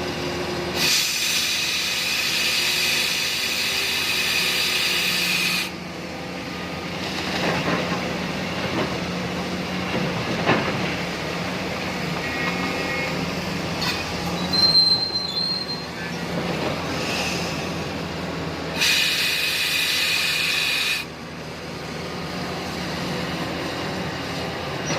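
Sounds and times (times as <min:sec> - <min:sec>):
excavator engine drone: 0:00.0 - 0:24.9
loud hydraulic hiss: 0:00.7 - 0:05.8, 0:16.9 - 0:17.9, 0:18.7 - 0:21.1
high squeal: 0:14.3 - 0:16.2.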